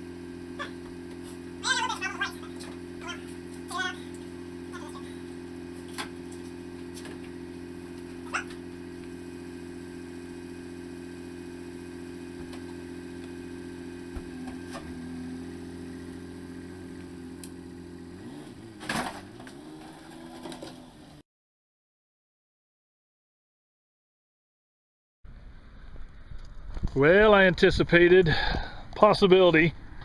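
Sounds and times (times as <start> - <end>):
outboard motor idling: 0.0 - 21.2
motor clunk: 0.6 - 9.3, 11.1 - 17.6, 18.4 - 21.1.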